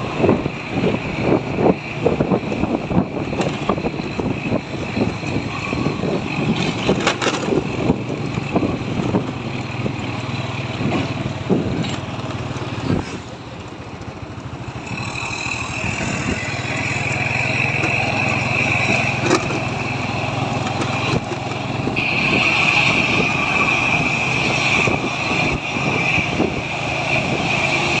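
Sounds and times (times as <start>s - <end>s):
truck engine running: 0.0s - 28.0s
high-pitched whine: 14.7s - 28.0s.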